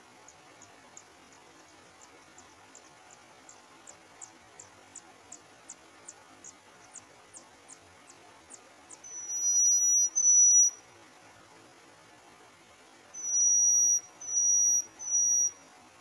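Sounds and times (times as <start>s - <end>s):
loud long high whistles: 9.1s - 10.8s, 13.2s - 15.6s
bird high downward chips: 13.2s - 15.6s.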